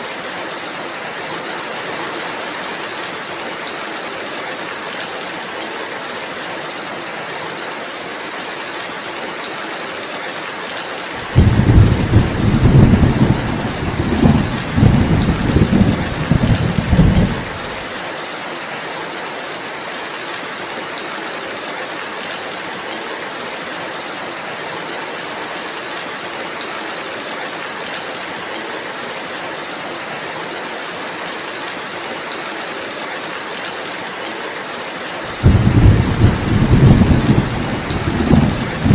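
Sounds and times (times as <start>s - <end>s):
steady rain: 0.0s - 38.9s
thunder rumbling: 11.2s - 17.8s, 35.3s - 38.9s.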